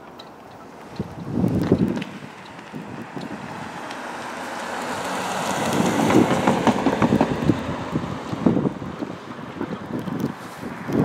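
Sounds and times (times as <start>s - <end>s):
train wheels clattering over rail joints: 5.7s - 7.7s.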